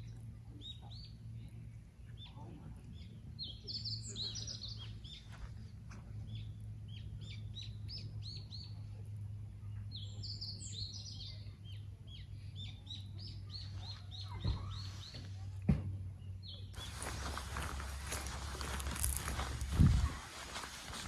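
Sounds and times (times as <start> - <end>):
birds chirping: 16.7 - 21.0.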